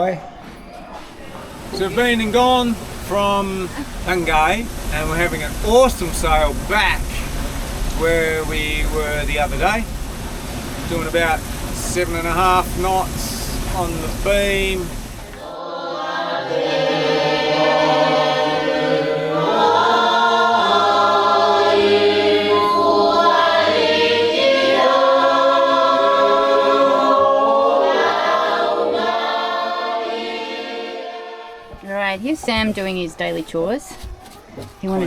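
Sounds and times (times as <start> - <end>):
choir singing in harmony: 1.3 - 31.8.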